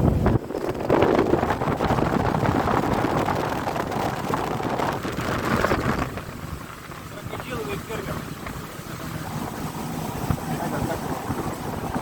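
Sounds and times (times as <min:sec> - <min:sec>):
motorboat motor and water rush: 0:00.0 - 0:12.0
wind buffeting microphone: 0:00.0 - 0:12.0.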